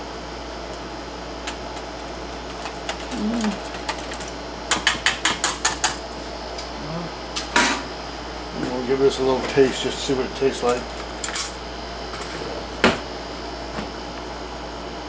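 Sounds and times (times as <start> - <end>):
whisk scraping bowl: 1.5 - 6.2.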